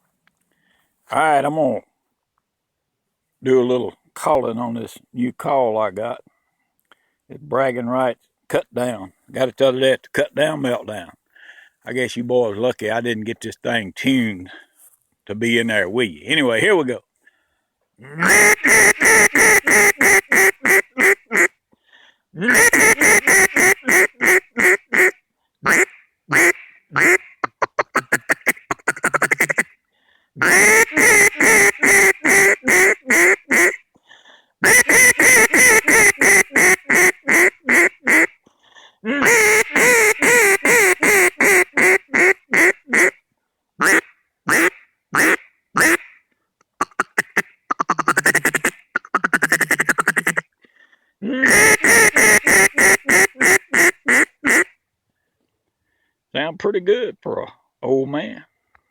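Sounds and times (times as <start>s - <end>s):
duck call quacking: 18.0s - 21.5s, 22.4s - 29.7s, 30.4s - 33.8s, 34.6s - 38.3s, 39.1s - 43.2s, 43.8s - 46.2s, 46.8s - 50.4s, 51.4s - 54.7s.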